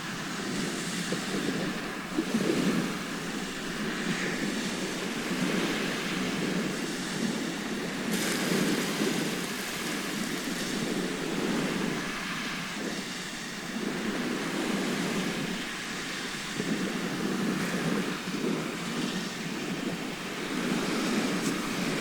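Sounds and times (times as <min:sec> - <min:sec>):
waves washing onto shore: 0:00.0 - 0:22.0.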